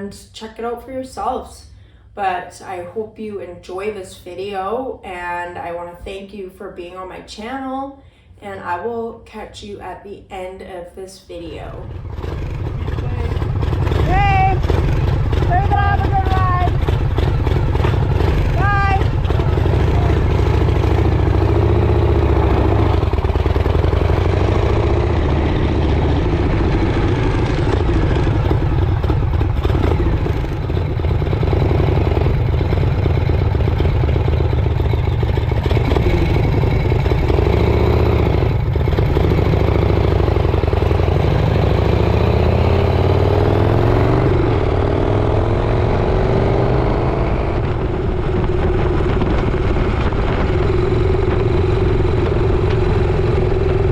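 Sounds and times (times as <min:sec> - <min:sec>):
motorcycle engine running: 0:11.8 - 0:53.9
road and wind noise: 0:11.8 - 0:53.9.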